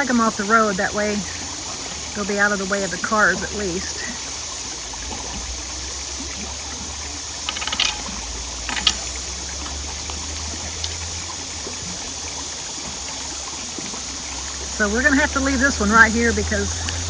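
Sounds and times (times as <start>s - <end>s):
creek water rushing: 0.0s - 17.0s
crackling clicks: 3.9s - 15.3s.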